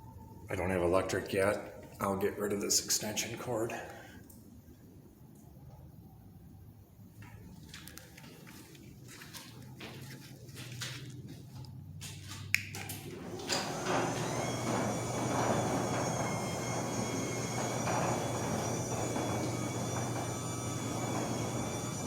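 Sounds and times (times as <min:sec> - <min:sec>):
roller door rolling: 0:12.1 - 0:22.0
garage door opener clicks: 0:12.7 - 0:22.0
garage door opener whining: 0:12.8 - 0:22.0.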